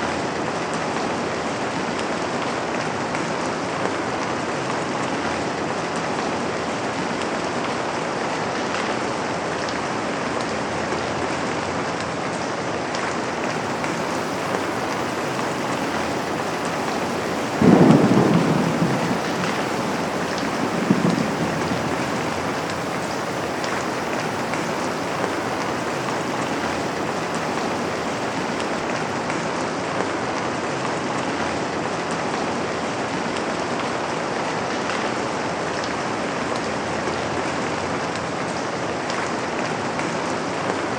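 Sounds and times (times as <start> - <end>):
rain on a window: 12.9 - 29.6
thunder rumble: 13.2 - 29.4
thunder clap: 13.2 - 29.5.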